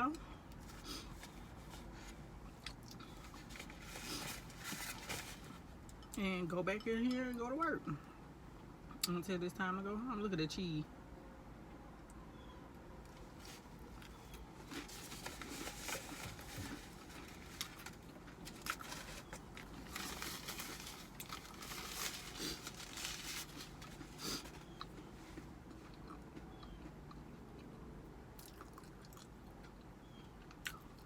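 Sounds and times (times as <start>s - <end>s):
person chewing with wet clicks: 2.4s - 3.4s, 23.9s - 31.0s.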